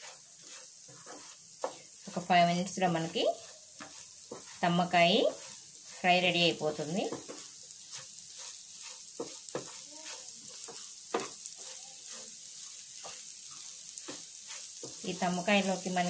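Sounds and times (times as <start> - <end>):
spatula scraping pan: 0.0 - 16.0
vegetables sizzling in pan: 0.0 - 16.0.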